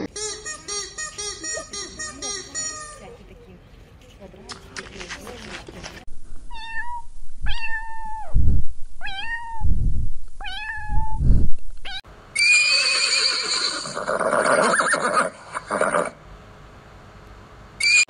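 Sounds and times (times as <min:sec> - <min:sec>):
kitten mewing: 0:06.5 - 0:08.4, 0:09.0 - 0:09.7, 0:10.4 - 0:11.2
horse whinnying: 0:12.4 - 0:16.2.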